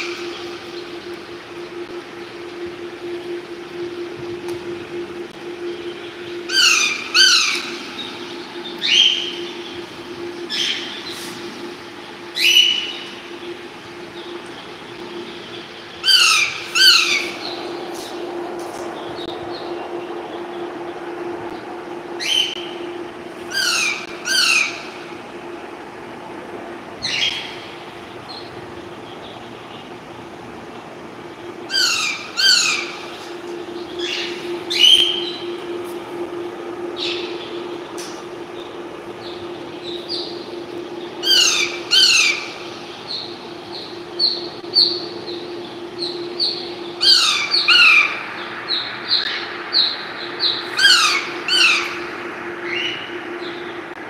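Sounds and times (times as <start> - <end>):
steady low hum: 0.0 - 54.0
parrot calling: 6.5 - 7.8, 16.0 - 17.4, 31.7 - 33.0, 41.2 - 42.6, 46.0 - 48.2, 49.2 - 52.1.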